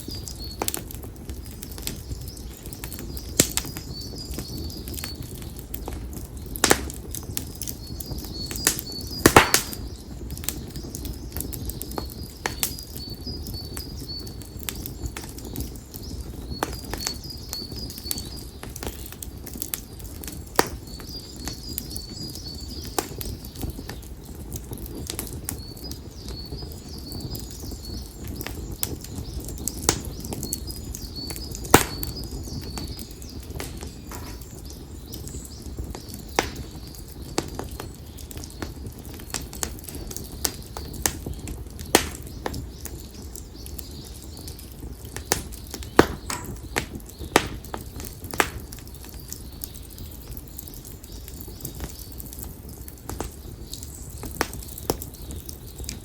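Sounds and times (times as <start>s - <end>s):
campfire crackling and popping: 0.0s - 56.0s
bird chirping: 25.2s - 47.9s.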